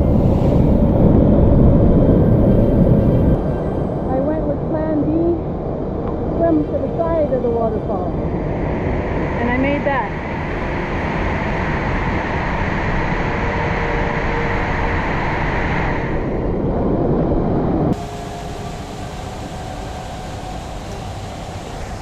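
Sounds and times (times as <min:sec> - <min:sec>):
waterfall rushing: 0:18.0 - 0:22.0.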